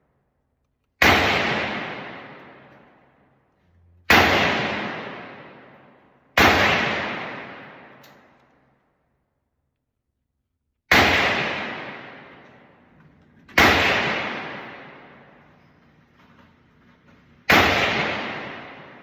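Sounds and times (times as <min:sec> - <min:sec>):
echoing rifle shots: 0:01.0 - 0:03.0, 0:04.1 - 0:08.4, 0:10.9 - 0:15.6, 0:17.5 - 0:19.0.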